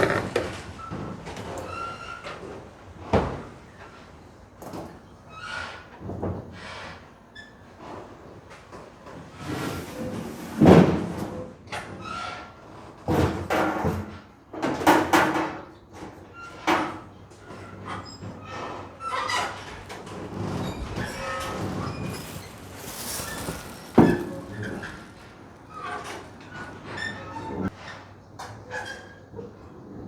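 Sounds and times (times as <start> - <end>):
brief squeaks: 19.1 - 27.8.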